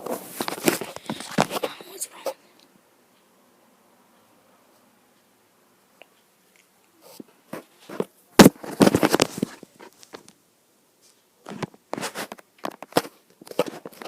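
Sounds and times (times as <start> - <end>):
rustling: 0.0 - 2.4, 6.5 - 10.4, 11.0 - 14.0.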